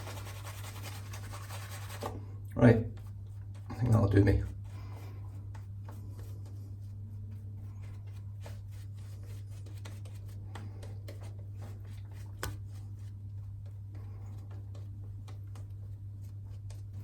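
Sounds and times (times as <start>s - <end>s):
steady low hum: 0.0s - 17.0s
light clicks and taps: 9.6s - 12.8s, 13.4s - 17.0s.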